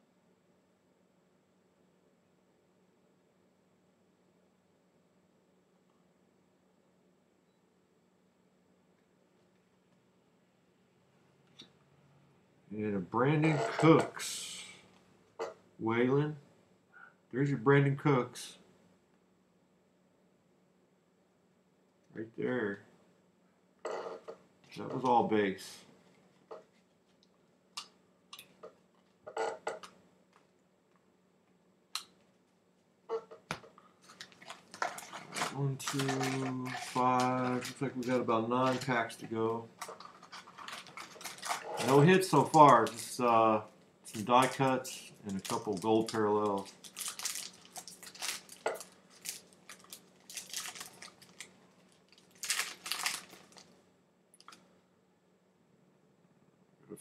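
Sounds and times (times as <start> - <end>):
trading cards being handled: 33.5 - 43.4, 44.1 - 53.7
wrapper tearing and crinkling: 34.0 - 39.0, 39.8 - 43.3, 44.2 - 53.7.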